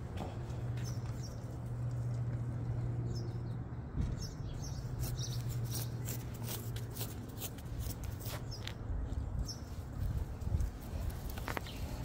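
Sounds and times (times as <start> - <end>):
small birds chirping: 0.7 - 1.7, 2.9 - 6.8, 8.2 - 10.1, 10.9 - 12.0.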